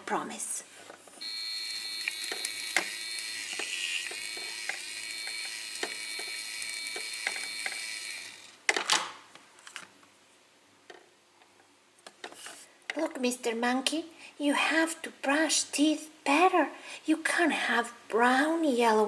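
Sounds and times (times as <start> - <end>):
toy drill whirring: 1.2 - 8.6.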